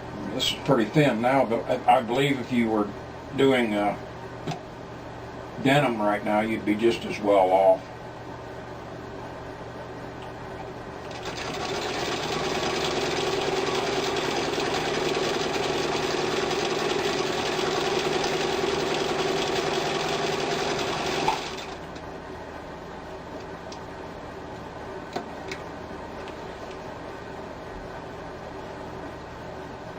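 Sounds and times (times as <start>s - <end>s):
sewing machine stitching: 11.1s - 21.9s.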